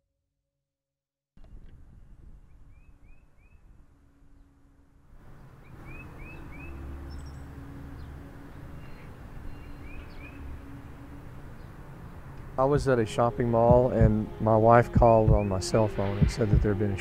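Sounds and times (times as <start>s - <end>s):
songbird chirping: 2.5s - 17.0s
outdoor background rumble: 3.8s - 17.0s.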